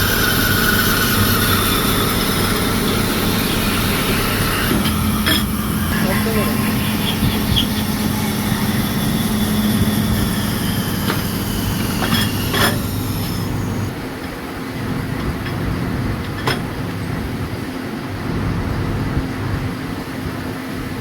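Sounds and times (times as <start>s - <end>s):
high hiss: 0.0s - 13.9s
machinery humming: 0.0s - 21.0s.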